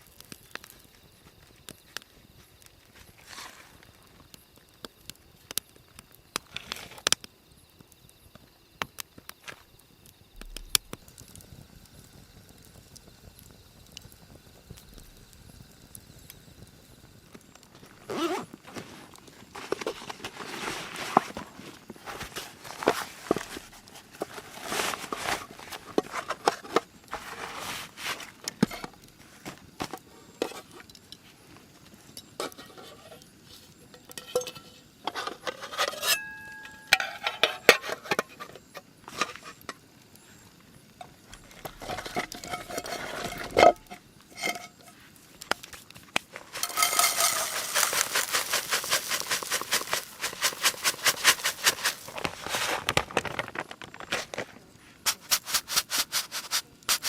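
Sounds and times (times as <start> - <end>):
cookware clinking and knocking: 34.1 - 34.7, 46.6 - 47.7
fast rhythmic scraping: 46.5 - 52.3.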